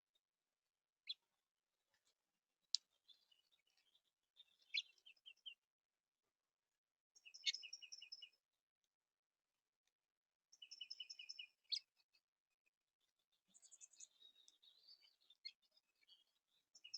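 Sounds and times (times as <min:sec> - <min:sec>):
small songbirds chirping: 0:01.0 - 0:05.7, 0:07.2 - 0:08.5, 0:10.5 - 0:16.9.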